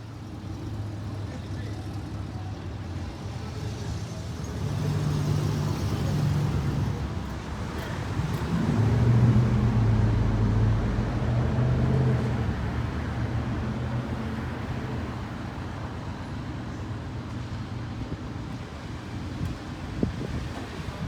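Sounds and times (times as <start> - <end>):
car engines passing: 0.2 - 16.2.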